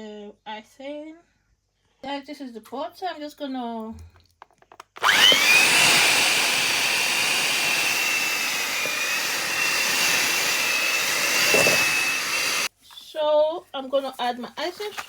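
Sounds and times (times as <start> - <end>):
electric mixer whining: 5.0 - 12.7.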